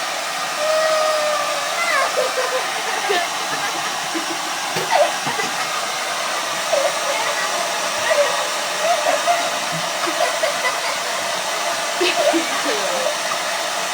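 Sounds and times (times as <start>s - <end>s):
hair dryer blowing: 0.0s - 13.9s.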